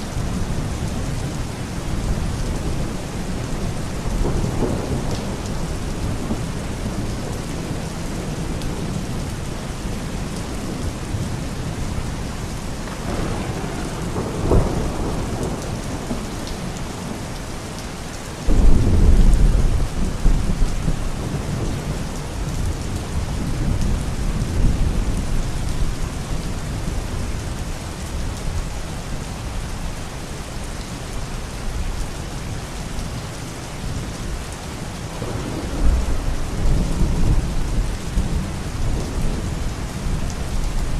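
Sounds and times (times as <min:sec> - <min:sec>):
steady rain: 0:00.0 - 0:40.9
thunder rumbling: 0:02.0 - 0:09.3, 0:12.8 - 0:27.3, 0:35.0 - 0:40.9
thunderclap: 0:12.8 - 0:17.2, 0:18.5 - 0:22.0.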